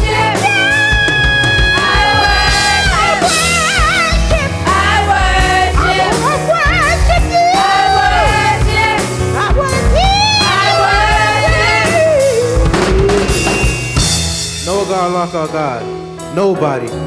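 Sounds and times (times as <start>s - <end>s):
vocalist singing with vibrato: 0.0s - 8.7s
band with bass: 0.0s - 16.3s.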